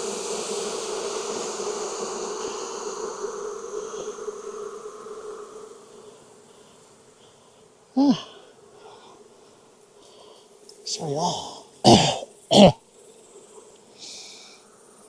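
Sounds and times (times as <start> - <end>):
honeybees buzzing: 0.0 - 12.8
person's brief loud vocal sound: 10.9 - 12.8.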